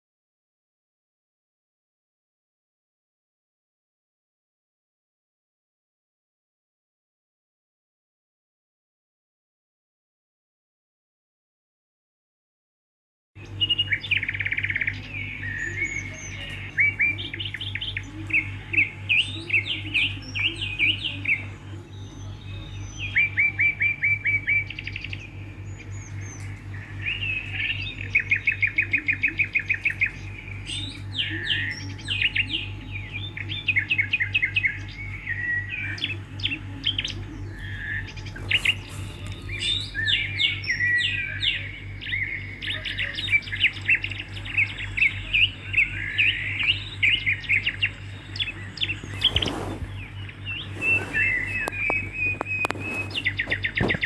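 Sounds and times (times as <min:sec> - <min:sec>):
steady low hum: 0:13.4 - 0:54.0.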